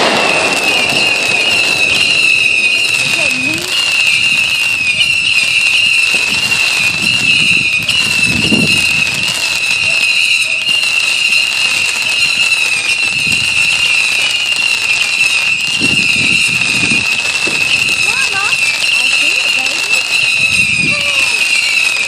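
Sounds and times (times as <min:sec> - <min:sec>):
distant fireworks booms: 0:00.0 - 0:22.0.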